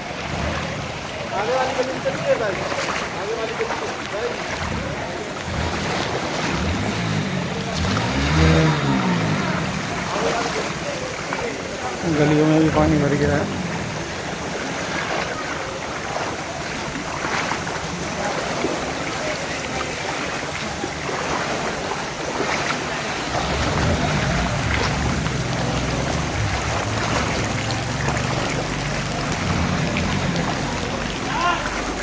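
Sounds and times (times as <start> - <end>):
floodwater sloshing and splashing: 0.0 - 32.0
low rumble: 23.3 - 32.0.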